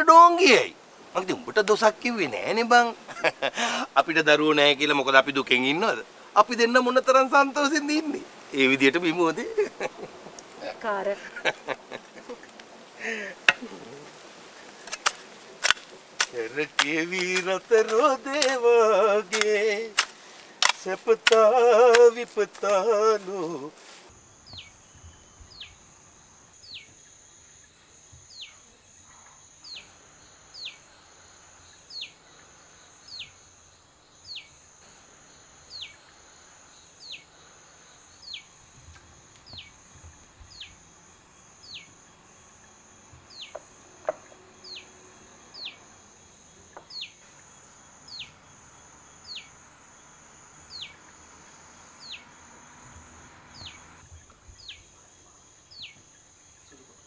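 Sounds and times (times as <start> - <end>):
high-pitched insect drone: 21.4 - 57.0.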